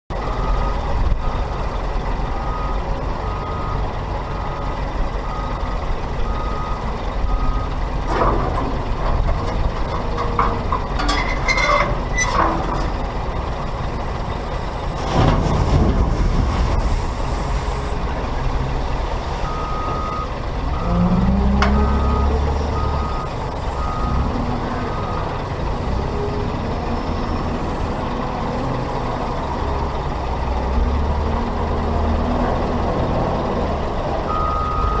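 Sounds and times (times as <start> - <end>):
heavy diesel machinery running: 0.1 - 35.0
reversing alarm beeping: 0.2 - 1.5, 2.4 - 7.8, 19.4 - 24.3, 34.3 - 35.0.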